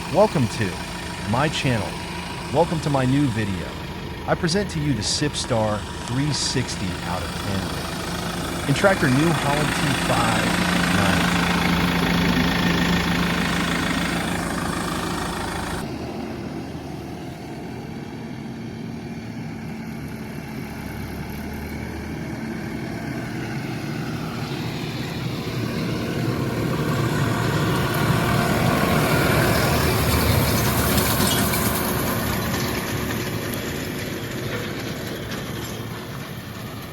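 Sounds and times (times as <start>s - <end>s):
tractor engine running: 0.0s - 17.8s, 20.4s - 36.9s.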